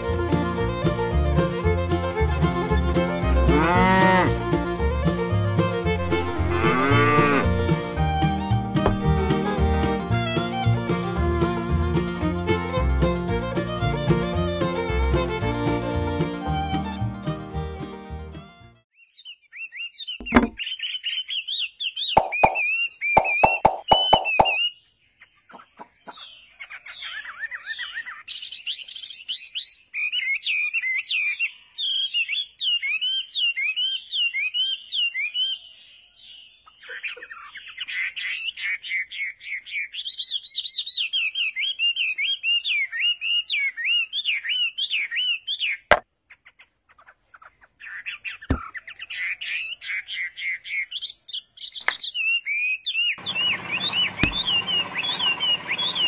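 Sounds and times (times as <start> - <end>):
small birds chirping: 18.9 - 56.0.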